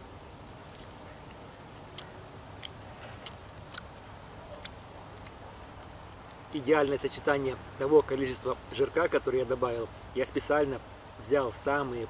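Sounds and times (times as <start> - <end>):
soft mouth clicks: 0.7 - 6.5
person chewing food: 1.9 - 6.4.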